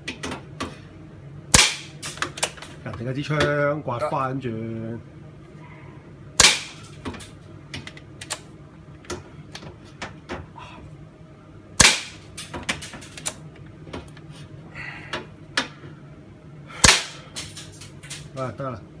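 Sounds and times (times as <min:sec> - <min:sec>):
airsoft rifle shots: 0:01.5 - 0:02.2, 0:06.4 - 0:06.9, 0:11.8 - 0:12.3, 0:16.8 - 0:17.3.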